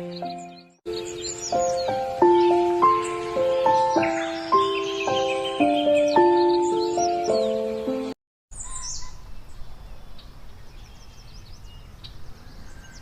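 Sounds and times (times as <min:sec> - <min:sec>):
background music: 0:00.0 - 0:08.2
small birds chirping: 0:00.0 - 0:13.0
faint outdoor hiss: 0:00.9 - 0:13.0.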